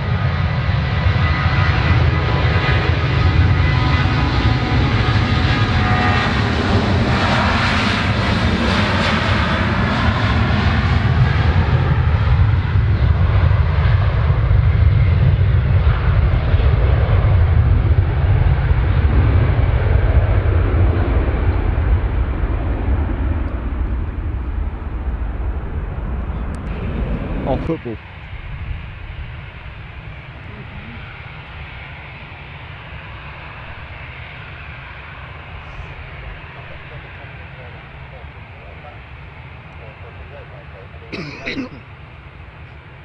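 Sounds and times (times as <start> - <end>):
jet engines rumbling and whining: 0.0 - 43.0.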